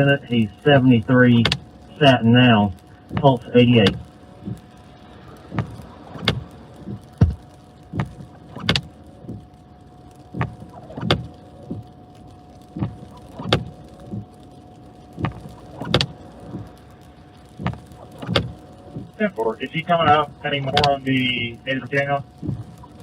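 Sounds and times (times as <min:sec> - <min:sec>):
knocks and thumps inside vehicle: 0:00.0 - 0:09.6, 0:10.2 - 0:12.0, 0:12.7 - 0:14.4, 0:15.1 - 0:16.8, 0:17.4 - 0:23.0
faint steady tone: 0:00.0 - 0:23.0.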